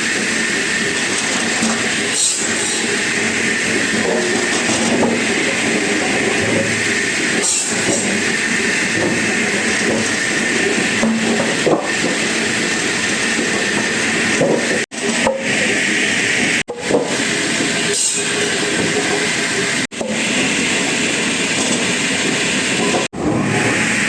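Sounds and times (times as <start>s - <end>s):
wood-processing machinery hissing: 0.0s - 24.0s.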